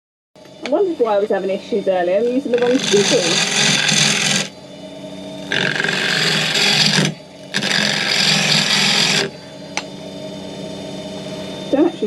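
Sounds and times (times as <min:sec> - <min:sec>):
lathe motor hum: 0:00.4 - 0:12.0
gouge scraping spinning wood: 0:01.1 - 0:09.8.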